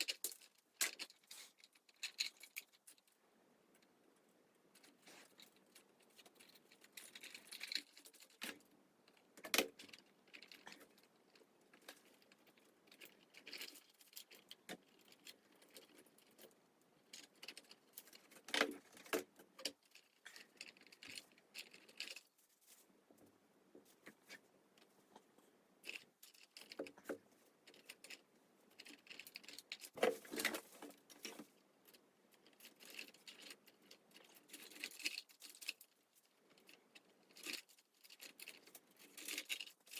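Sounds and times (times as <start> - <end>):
hands handling small objects: 3.8 - 39.9.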